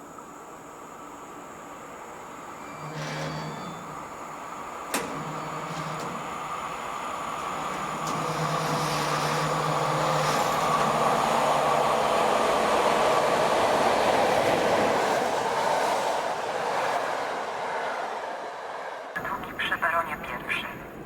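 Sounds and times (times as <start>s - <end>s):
train wheels rumbling on rails: 2.0s - 18.0s.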